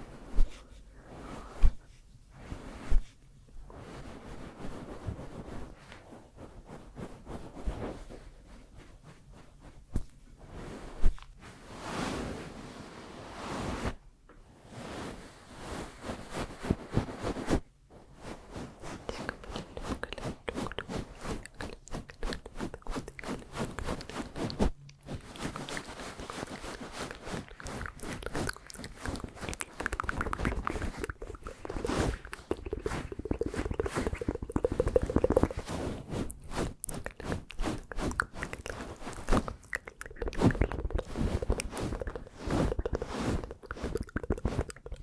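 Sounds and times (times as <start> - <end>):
wet mouth clicks and smacks: 27.4 - 35.7, 36.9 - 45.0.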